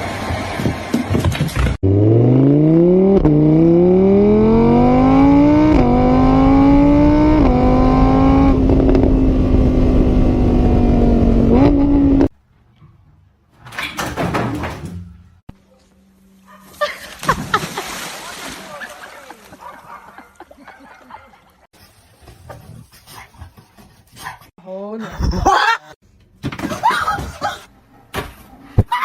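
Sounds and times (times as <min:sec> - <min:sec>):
car engine accelerating: 0:01.7 - 0:12.3.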